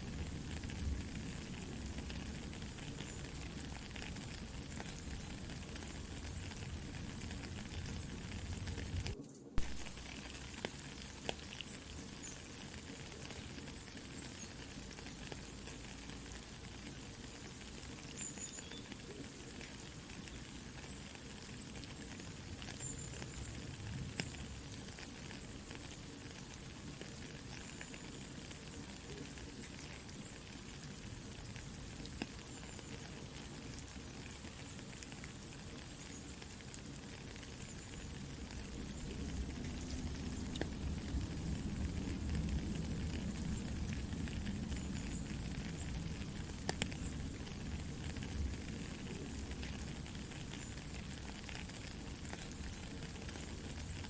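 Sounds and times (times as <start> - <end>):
campfire crackling: 0.0 - 54.0
soft rain pattering: 0.0 - 54.0.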